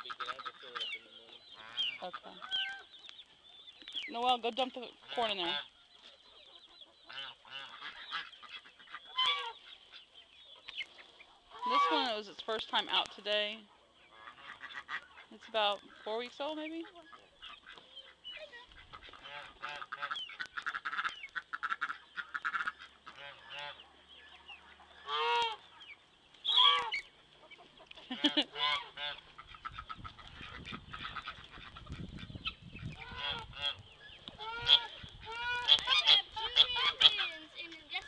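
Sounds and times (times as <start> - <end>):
geese honking: 0.0 - 3.4, 4.1 - 38.0.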